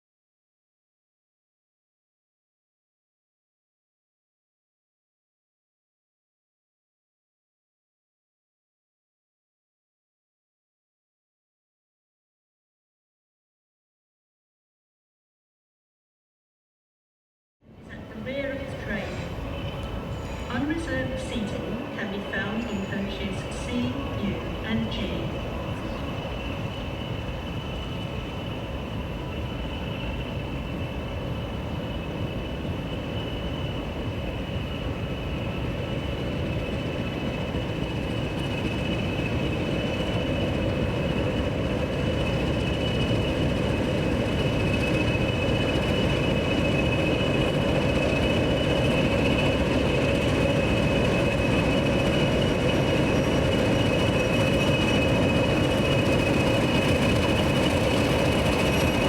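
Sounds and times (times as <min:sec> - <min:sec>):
train running on rails: 0:17.7 - 0:59.0
wheels squealing: 0:19.0 - 0:21.7.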